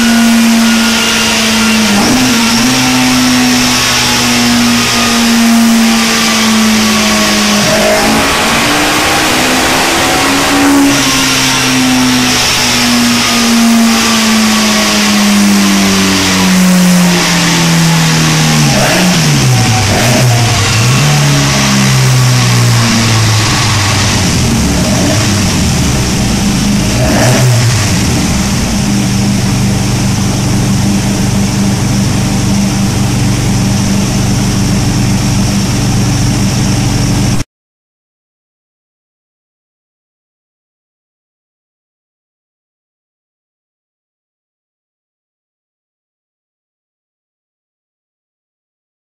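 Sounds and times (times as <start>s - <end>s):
car engine running on dyno: 0.0s - 37.4s.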